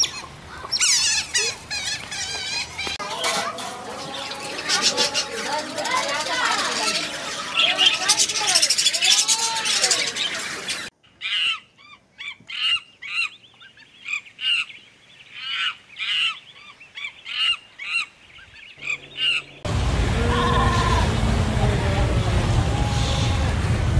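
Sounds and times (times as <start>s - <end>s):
loud dense sound: 18.8s - 23.9s.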